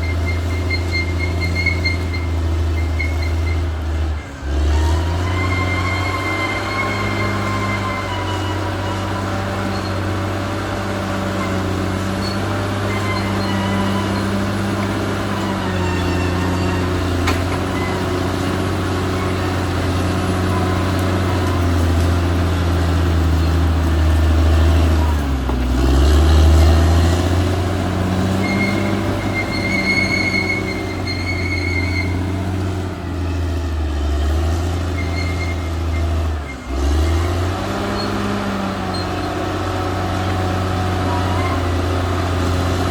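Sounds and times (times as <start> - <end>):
thin high squeal: 0.0 - 3.7, 4.7 - 10.3, 11.2 - 19.7, 28.3 - 32.5, 34.8 - 37.3
bulldozer diesel engine running: 0.0 - 42.9.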